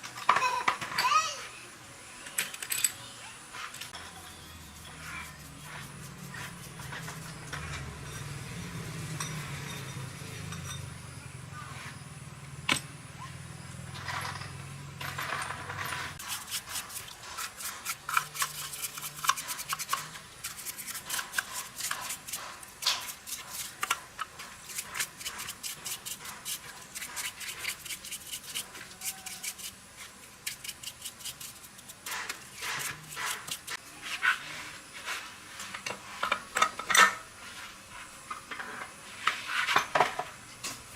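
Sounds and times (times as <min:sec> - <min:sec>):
metallic clinks of small tools: 0:02.4 - 0:03.0.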